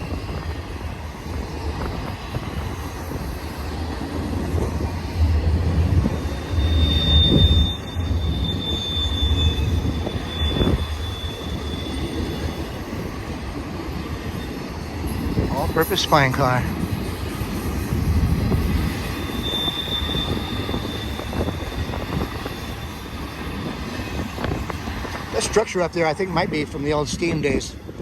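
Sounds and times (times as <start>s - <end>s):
train wheels rumbling on rail: 0.0s - 28.0s
high wheel squeal: 4.4s - 13.4s, 18.3s - 27.3s.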